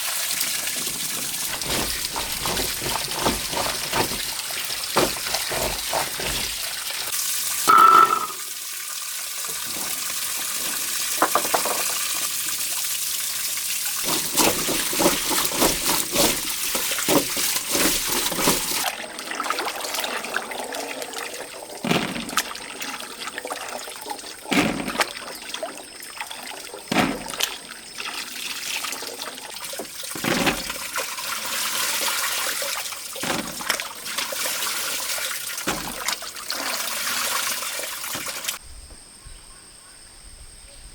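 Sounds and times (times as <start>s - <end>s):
water running and splashing: 0.0s - 38.6s
knocks and clatters: 1.2s - 7.0s, 11.2s - 12.1s, 35.7s - 36.1s.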